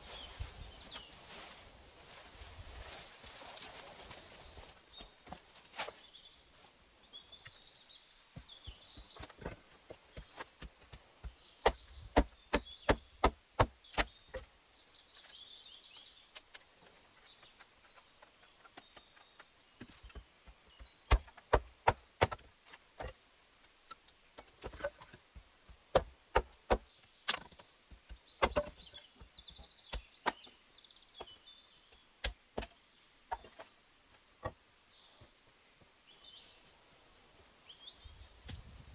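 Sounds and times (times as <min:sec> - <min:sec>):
faint birds chirping: 0:00.0 - 0:38.9
axe chopping wood: 0:11.6 - 0:14.5, 0:21.1 - 0:23.2, 0:25.9 - 0:28.8.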